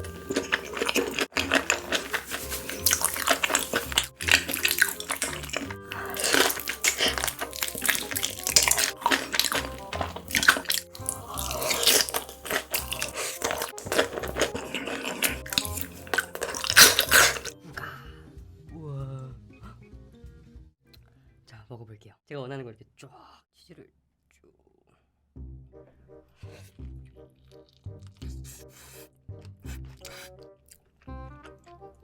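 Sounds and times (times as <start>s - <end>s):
slurping: 0.0s - 17.6s, 27.4s - 30.5s
wet chewing and crunching: 0.0s - 17.6s, 26.4s - 31.6s
background music with bass line: 25.4s - 27.3s, 31.1s - 32.0s.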